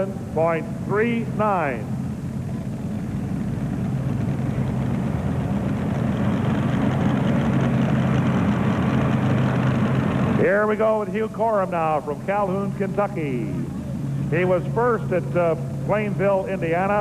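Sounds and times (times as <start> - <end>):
big engine running: 0.0 - 17.0.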